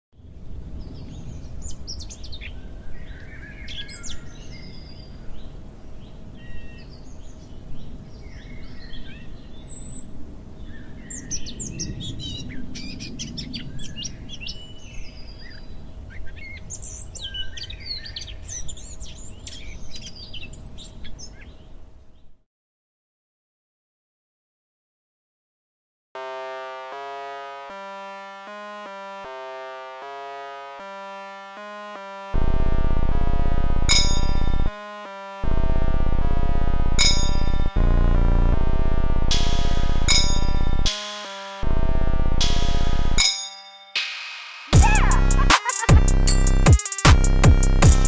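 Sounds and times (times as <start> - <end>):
birds chirping and singing: 0.6 - 22.3, 44.8 - 48.0
low rumble: 35.4 - 40.9.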